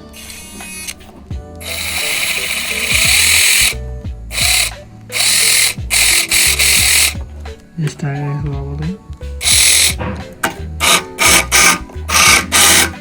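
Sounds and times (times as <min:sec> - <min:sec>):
tiny electric motor whirring: 0:00.0 - 0:01.0, 0:01.6 - 0:07.2, 0:09.4 - 0:10.0, 0:10.8 - 0:13.0
background music: 0:00.0 - 0:13.0.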